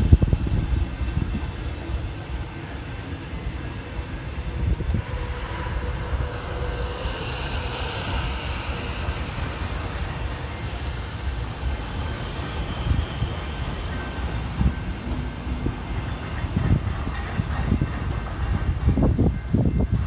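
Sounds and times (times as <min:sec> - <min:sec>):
train carriages rumbling over rails: 0:00.0 - 0:20.0
bright hiss: 0:05.2 - 0:19.6.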